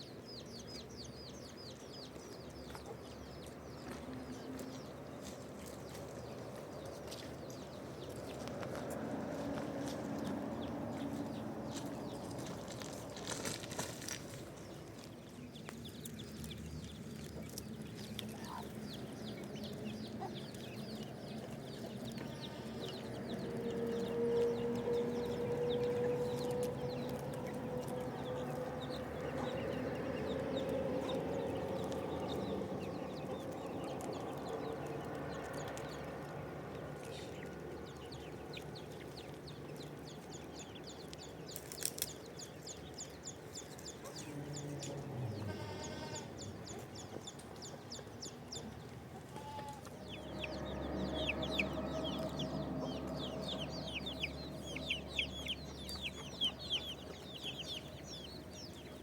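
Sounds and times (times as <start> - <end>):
chicks peeping: 0.3 - 59.0
chickens clucking: 16.2 - 40.8, 42.8 - 59.0.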